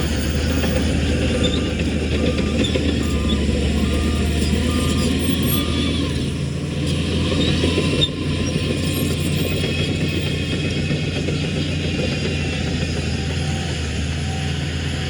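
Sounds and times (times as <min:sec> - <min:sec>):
reversing alarm beeps: 0:00.0 - 0:06.4
heavy diesel machine running: 0:00.0 - 0:15.0.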